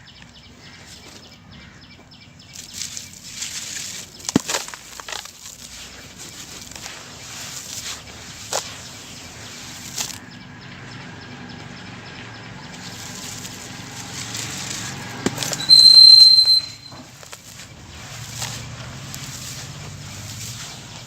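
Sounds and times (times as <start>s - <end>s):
soft rustle: 2.0s - 10.2s, 12.7s - 21.0s
sand-cement crumbling: 2.5s - 10.2s, 12.7s - 21.0s
sharp cracks: 2.6s - 5.8s
high steady whistle-like tone: 15.5s - 17.1s.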